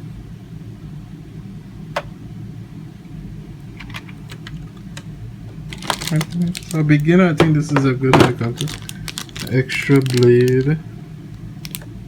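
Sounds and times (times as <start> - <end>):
steady low hum: 0.0 - 12.0
plastic parts clicking: 5.7 - 6.8, 7.4 - 10.8, 11.6 - 11.9.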